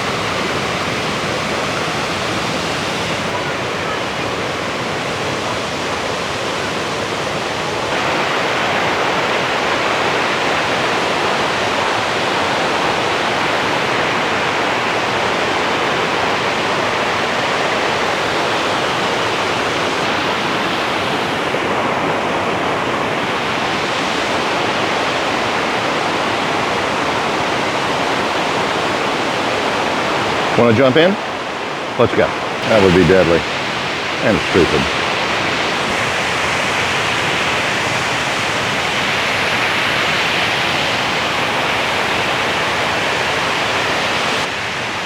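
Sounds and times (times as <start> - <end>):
whitewater roaring over rock: 0.0 - 45.0.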